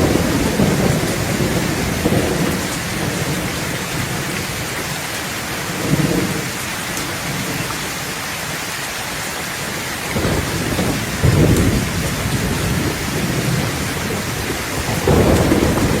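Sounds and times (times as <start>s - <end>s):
low rumbles of thunder: 0.0s - 4.8s, 10.1s - 16.0s
steady rain falling: 0.0s - 16.0s.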